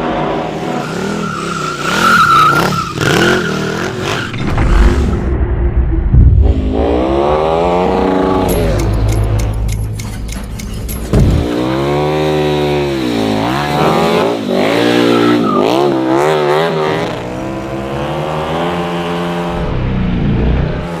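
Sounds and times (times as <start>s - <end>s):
motorcycle engine revving: 6.4s - 21.0s.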